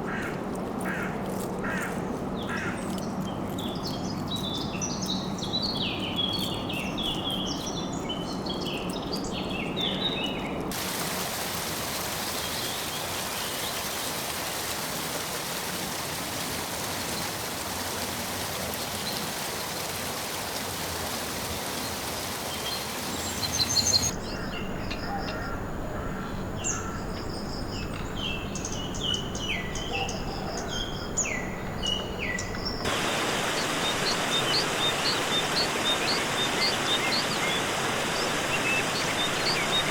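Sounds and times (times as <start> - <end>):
birds calling with whistled notes: 2.4 - 10.7, 21.8 - 39.9
steady hiss: 10.7 - 24.1, 32.8 - 39.9.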